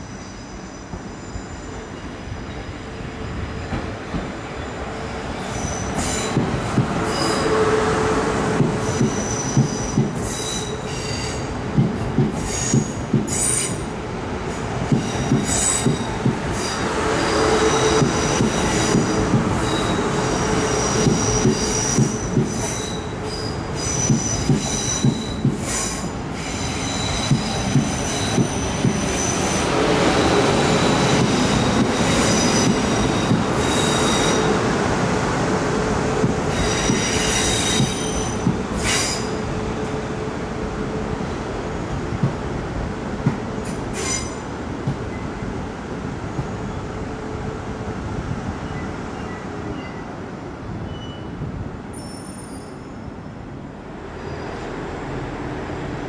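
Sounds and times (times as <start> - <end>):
train wheels squealing: 0.0 - 7.9, 8.8 - 11.6, 12.3 - 13.9, 14.5 - 34.6, 36.5 - 39.5, 43.6 - 44.5, 48.6 - 50.2, 50.8 - 53.2, 54.1 - 54.7
train rumbling over tracks: 0.0 - 56.0.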